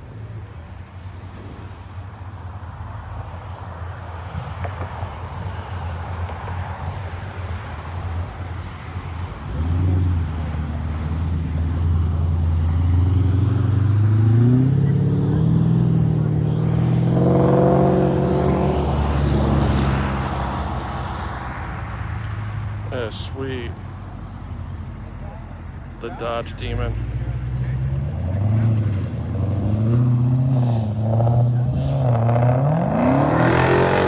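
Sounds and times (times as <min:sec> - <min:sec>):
car engine revving: 0:07.5 - 0:34.0.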